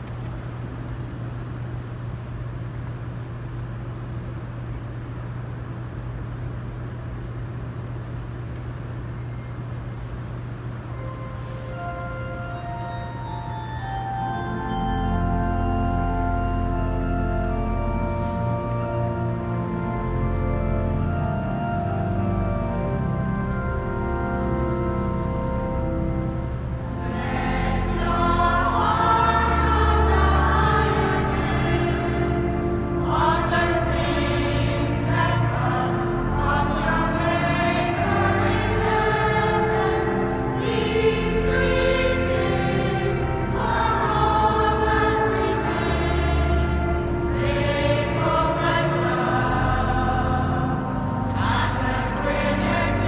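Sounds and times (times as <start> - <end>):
organ chords: 7.8 - 53.0
choir singing: 26.6 - 53.0.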